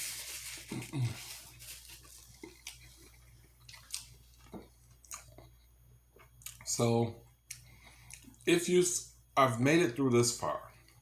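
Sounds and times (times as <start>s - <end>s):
person chewing and lip smacking: 2.2s - 6.7s.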